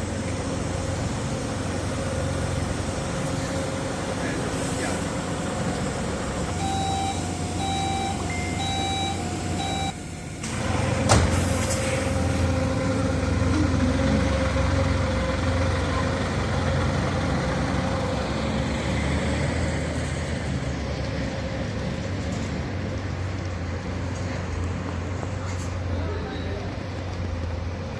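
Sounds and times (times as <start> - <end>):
heavy vehicle engine idling: 0.0 - 27.9
short electronic beeps: 6.6 - 10.0.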